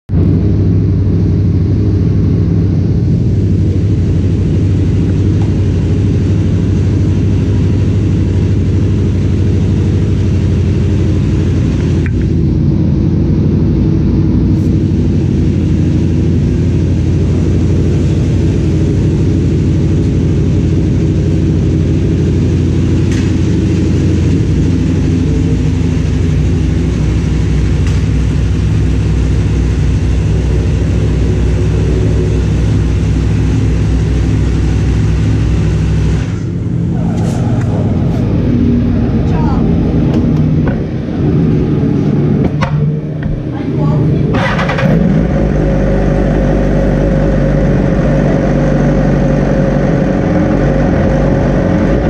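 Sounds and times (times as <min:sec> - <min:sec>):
motorcycle engine idling: 0:00.1 - 0:37.0.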